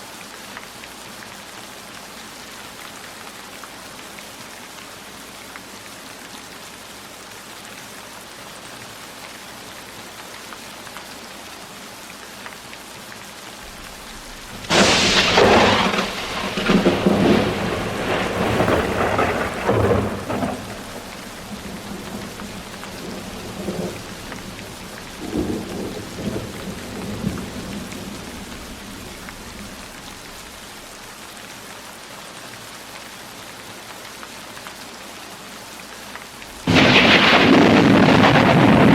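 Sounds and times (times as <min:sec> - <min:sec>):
heavy rain falling: 0:00.0 - 0:38.9
thunder crack and rumble: 0:13.6 - 0:30.6, 0:36.6 - 0:38.9.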